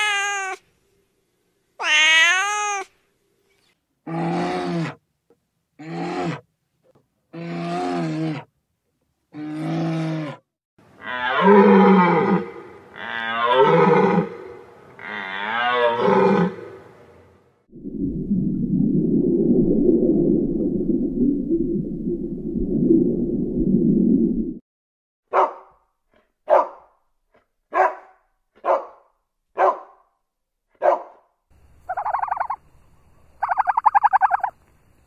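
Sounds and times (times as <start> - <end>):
wavering animal calls: 31.9 - 32.6.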